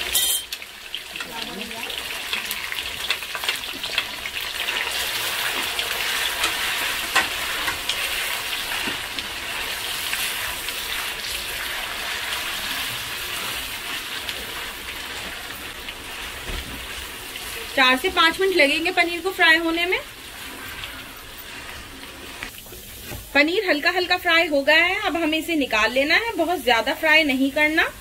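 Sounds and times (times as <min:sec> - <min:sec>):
cheese cubes sizzling in hot oil: 0:00.0 - 0:28.0
wooden spatula stirring: 0:04.7 - 0:23.4.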